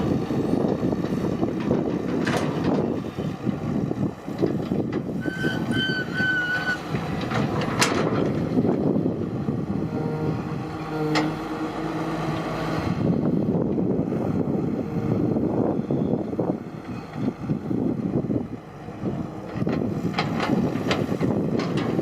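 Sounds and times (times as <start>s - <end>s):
excavator engine and hydraulics: 0.0s - 22.0s
short high squeals: 5.2s - 6.9s.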